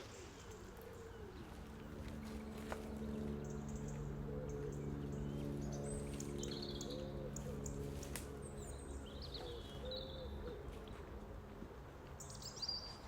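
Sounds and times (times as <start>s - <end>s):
low arching bird calls: 0.0s - 10.8s
steady low hum: 0.0s - 13.0s.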